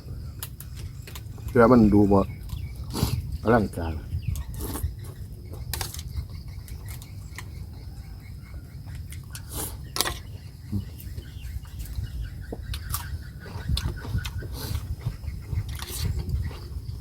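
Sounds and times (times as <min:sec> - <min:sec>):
person chewing food: 0:04.3 - 0:07.6, 0:08.8 - 0:17.0.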